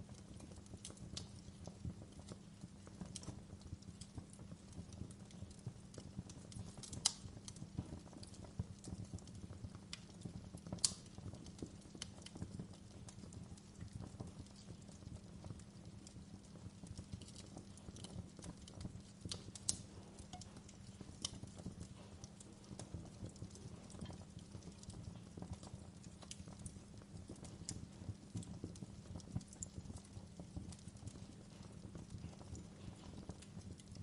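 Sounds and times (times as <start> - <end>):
logs crackling and popping: 0.0 - 34.0
low rumble of flames: 0.0 - 34.0.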